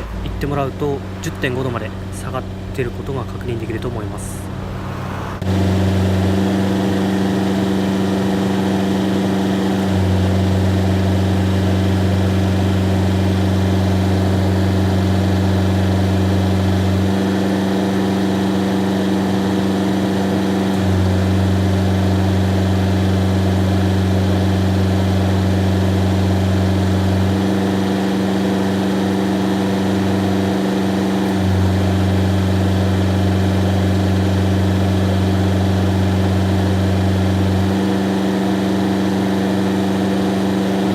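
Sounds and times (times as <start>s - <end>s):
tractor diesel engine idling: 0.0s - 4.6s
air conditioning running: 0.0s - 40.9s
low hum: 0.0s - 40.9s.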